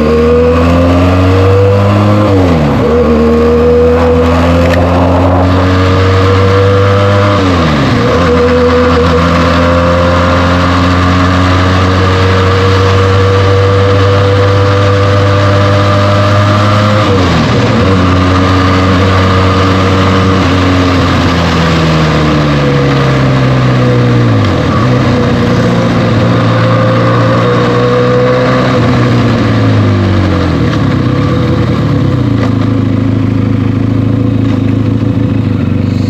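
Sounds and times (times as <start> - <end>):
motorcycle engine accelerating: 0.0 - 36.0
gear upshifts: 2.5 - 9.6.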